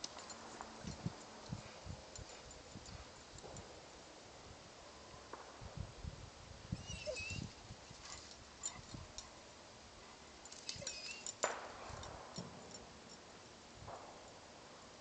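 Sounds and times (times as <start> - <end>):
collar tags jingling: 0.0 - 3.8, 6.9 - 13.3.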